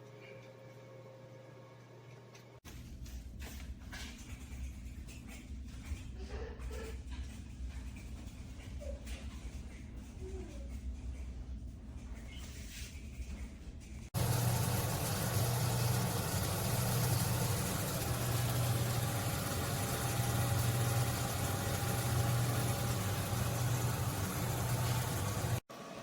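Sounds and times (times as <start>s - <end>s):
air fryer fan humming: 14.2s - 26.0s.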